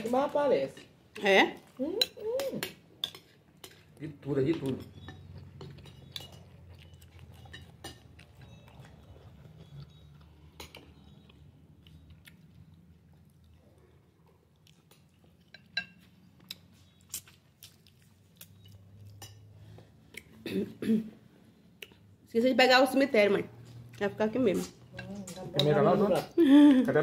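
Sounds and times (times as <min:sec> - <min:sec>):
chewing and eating: 0:01.6 - 0:20.4.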